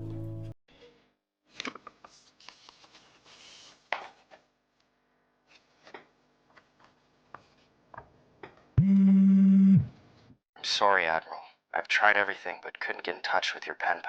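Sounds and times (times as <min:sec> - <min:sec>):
soft rustling and rubbing: 0:02.0 - 0:04.3.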